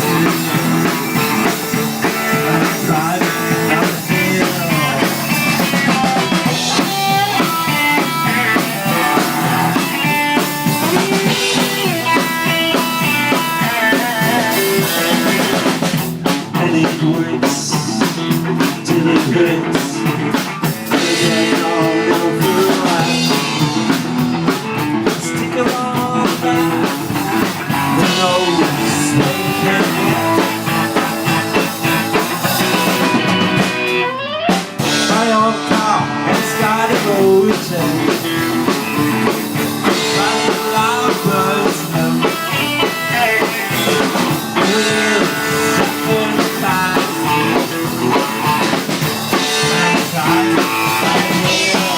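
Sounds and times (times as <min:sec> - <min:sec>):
electric guitar slide: 0:00.0 - 0:51.9
rock band playing: 0:00.0 - 0:51.9.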